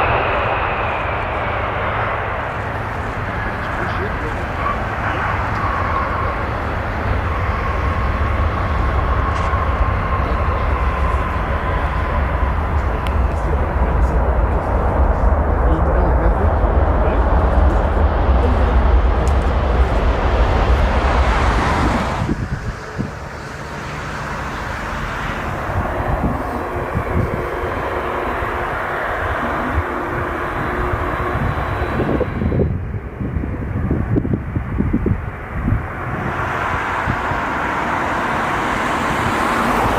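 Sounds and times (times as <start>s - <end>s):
high engine whine: 0.0s - 39.9s
jet engines rumbling: 0.0s - 39.9s.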